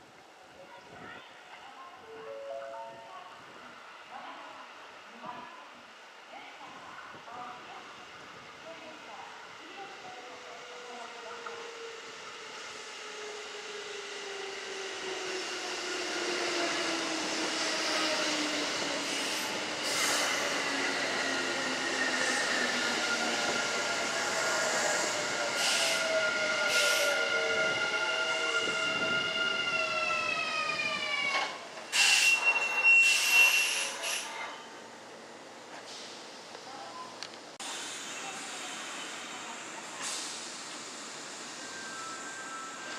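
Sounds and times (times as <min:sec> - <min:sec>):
high brake squeal: 0:31.9 - 0:34.8, 0:41.4 - 0:42.9.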